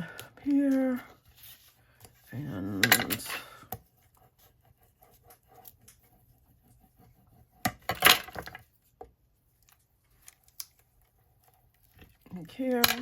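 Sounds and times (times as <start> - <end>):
paper and tools tapping: 3.1 - 9.2.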